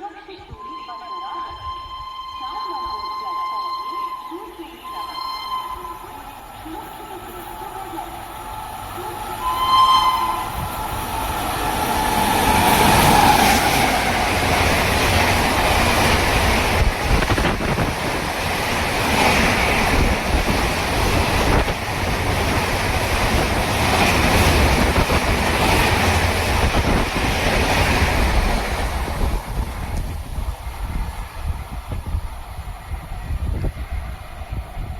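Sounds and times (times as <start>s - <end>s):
train rushing by: 2.8s - 34.9s
train horn blast: 9.4s - 10.7s.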